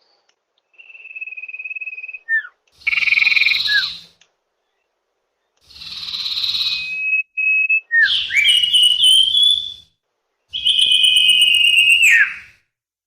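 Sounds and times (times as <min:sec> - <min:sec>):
bird whistles: 0:00.7 - 0:04.2, 0:05.7 - 0:09.9, 0:10.5 - 0:12.6.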